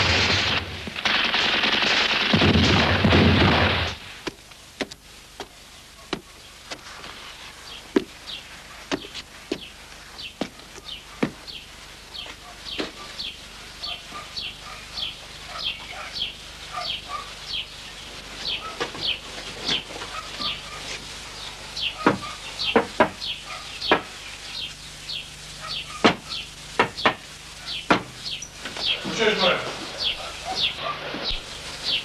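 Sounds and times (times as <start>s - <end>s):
birds chirping: 5.3s - 32.0s
loud sharp calls or knocks: 27.8s - 28.2s.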